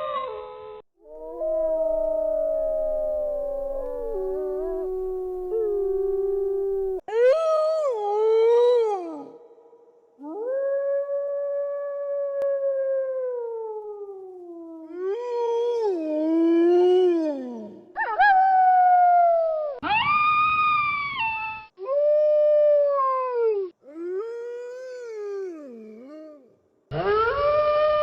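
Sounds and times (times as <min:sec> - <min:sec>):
wolves howling: 0:01.1 - 0:07.1.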